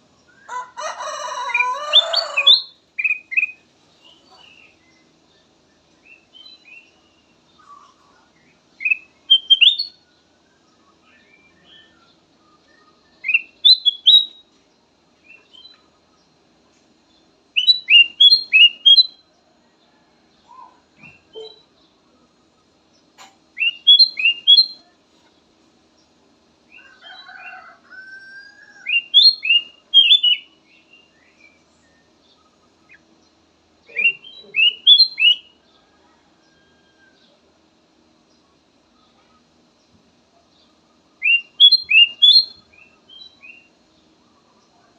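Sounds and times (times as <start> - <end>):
bulbul singing whistled phrases: 1.6 - 14.4, 17.5 - 19.3, 20.6 - 21.7, 23.5 - 25.0, 28.8 - 33.1, 33.8 - 35.6, 41.2 - 43.8.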